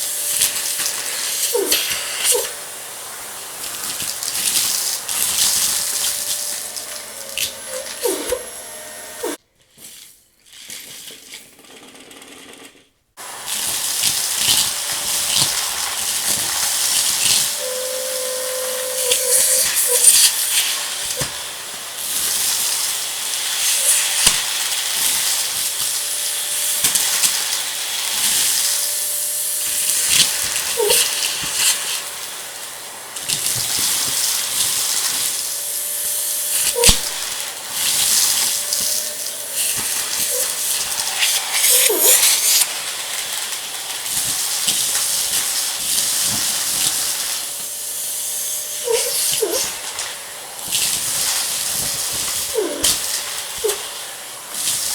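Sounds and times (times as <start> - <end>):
vacuum cleaner running: 0.0 - 9.4, 13.2 - 54.9
debris crackling in vacuum: 13.2 - 54.9.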